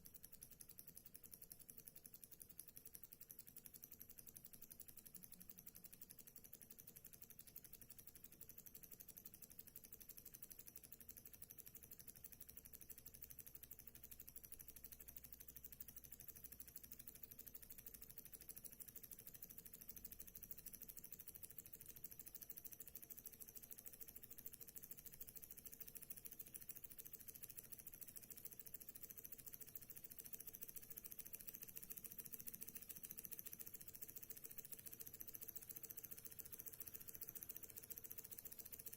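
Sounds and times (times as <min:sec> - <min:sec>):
small engine fast mechanical ticking: 0:00.0 - 0:38.9.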